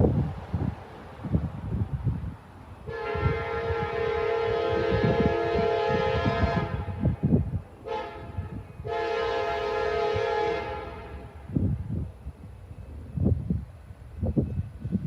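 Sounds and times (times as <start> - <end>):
train rumble with heavy thumps: 0.0 - 15.0
locomotive air horn: 2.8 - 11.5.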